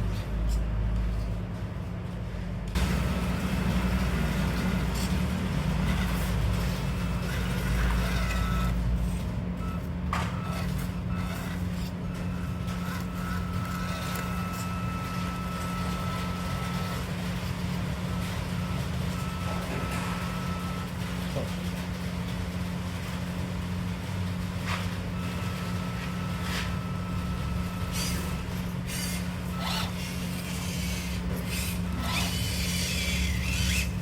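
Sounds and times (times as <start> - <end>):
vehicle motor running: 0.0 - 21.9.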